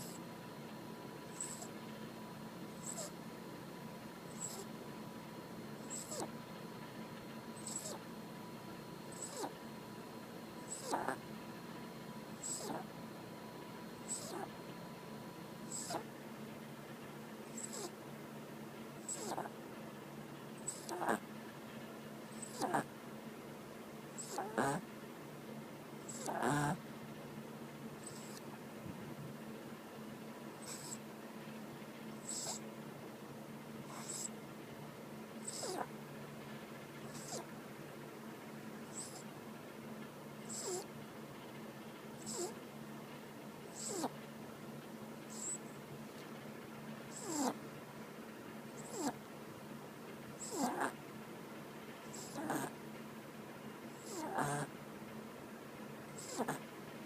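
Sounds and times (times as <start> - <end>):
dog snoring loudly: 0.0 - 0.2, 1.3 - 1.7, 2.8 - 3.1, 4.3 - 4.7, 5.8 - 6.3, 7.6 - 8.0, 9.1 - 9.6, 10.7 - 11.2, 12.4 - 12.9, 14.1 - 14.5, 15.7 - 16.1, 17.5 - 17.9, 19.0 - 19.5, 20.6 - 21.2, 22.3 - 22.9, 24.2 - 24.8, 26.0 - 26.8, 28.0 - 28.4, 30.6 - 31.0, 32.2 - 32.6, 33.8 - 34.3, 35.4 - 35.9, 37.0 - 37.5, 38.9 - 39.2, 40.5 - 40.9, 42.2 - 42.6, 43.7 - 44.1, 45.3 - 45.6, 47.1 - 47.6, 48.8 - 49.2, 50.4 - 51.0, 52.1 - 52.8, 53.9 - 54.7, 56.2 - 56.6.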